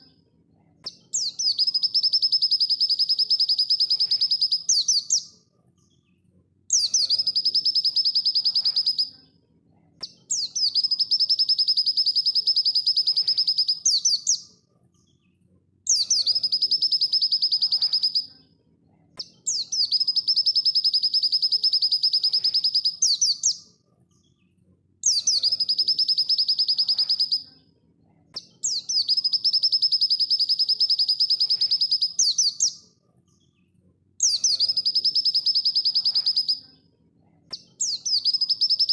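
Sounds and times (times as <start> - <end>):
bird singing rapid trills: 1.0 - 5.3, 6.7 - 9.1, 10.3 - 14.4, 15.9 - 18.3, 19.5 - 23.6, 25.0 - 27.4, 28.4 - 32.8, 34.2 - 36.6, 37.8 - 38.9.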